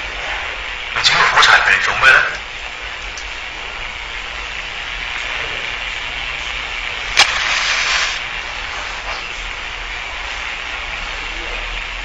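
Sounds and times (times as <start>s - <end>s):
film hiss: 0.0s - 12.0s
match striking and flaring: 7.1s - 8.3s.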